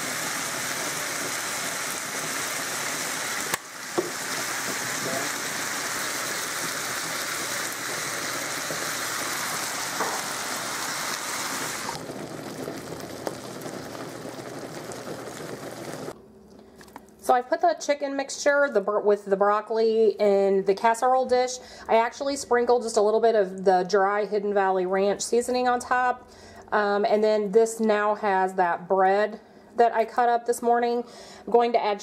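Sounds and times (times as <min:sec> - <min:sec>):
food sizzling in a skillet: 0:00.0 - 0:16.2.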